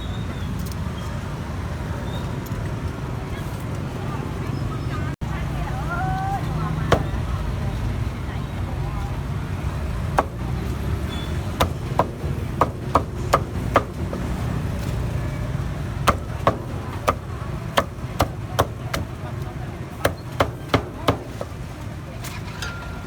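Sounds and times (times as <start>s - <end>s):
cleaver chopping on cutting board: 6.9s - 7.2s, 10.2s - 10.4s, 11.6s - 14.4s, 16.1s - 19.2s, 20.0s - 21.6s.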